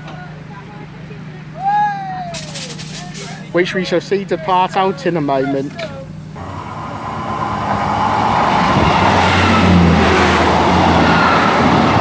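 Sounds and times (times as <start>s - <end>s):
train engine drone: 0.0s - 12.0s
train wheels on rails: 5.8s - 12.0s.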